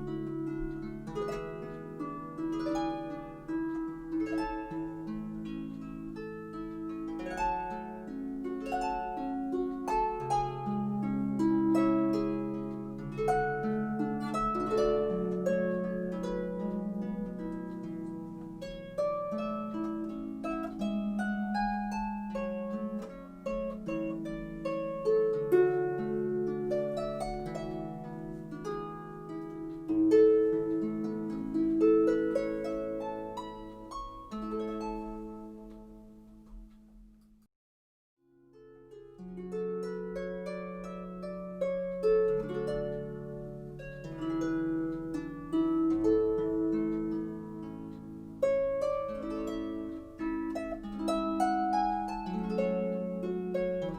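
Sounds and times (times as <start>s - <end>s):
solo harp music: 0.0s - 37.5s, 38.2s - 53.9s.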